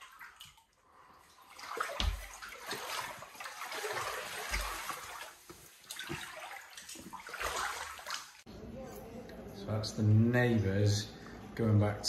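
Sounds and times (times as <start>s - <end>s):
floodwater sloshing around legs: 0.0s - 8.4s.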